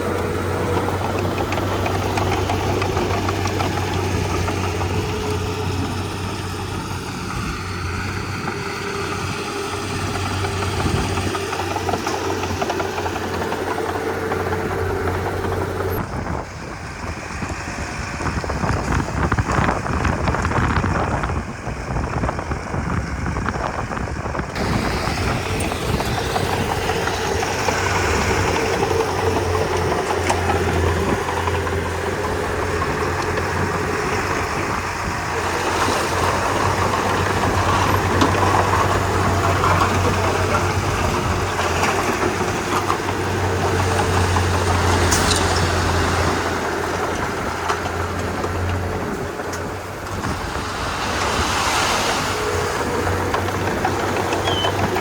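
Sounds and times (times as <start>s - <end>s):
bulldozer diesel engine running: 0.0s - 55.0s
mechanical clatter: 36.1s - 50.6s.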